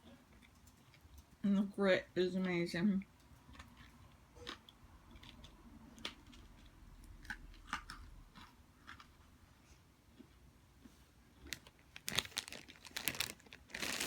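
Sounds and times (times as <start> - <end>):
gritty chewing crunches: 3.4 - 9.3, 11.4 - 14.0.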